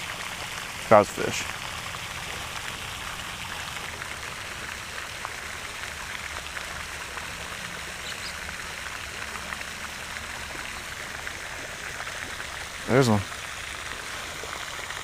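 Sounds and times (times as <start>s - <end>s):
patter of falling water: 0.0s - 15.0s.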